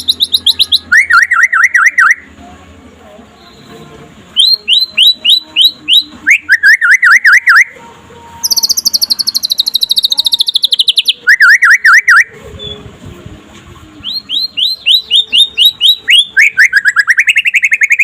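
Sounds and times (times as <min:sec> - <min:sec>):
songbird singing varied song: 0:00.0 - 0:02.3, 0:04.4 - 0:07.7, 0:08.4 - 0:12.9, 0:14.0 - 0:18.0.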